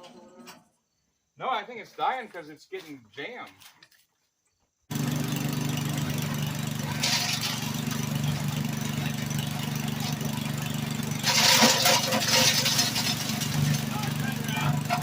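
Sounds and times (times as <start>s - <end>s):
rough chipping bursts: 4.9s - 15.0s
wood chipper engine running: 4.9s - 15.0s.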